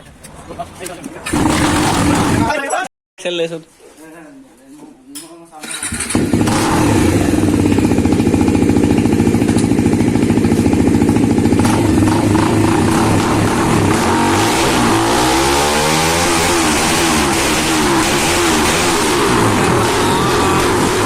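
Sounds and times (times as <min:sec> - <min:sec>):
loud motorcycle engine revving: 0:01.3 - 0:02.6, 0:05.6 - 0:21.0.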